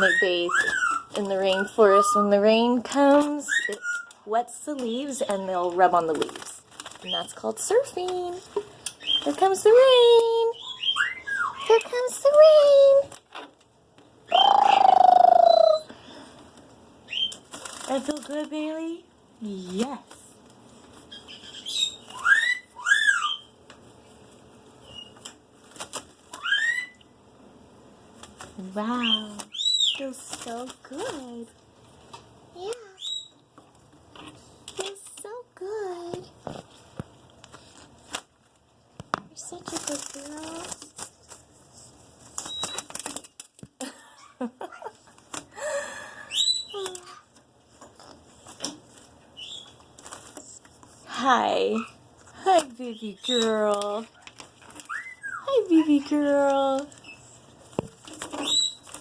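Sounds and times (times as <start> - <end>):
bird squeak: 0.0 - 2.2, 3.5 - 4.2, 10.6 - 11.7, 21.1 - 23.5, 26.4 - 27.0, 54.9 - 55.5
parrot whistled calls: 0.0 - 2.3, 3.5 - 4.3, 10.6 - 11.7, 21.2 - 23.5, 26.4 - 27.1, 54.9 - 55.5.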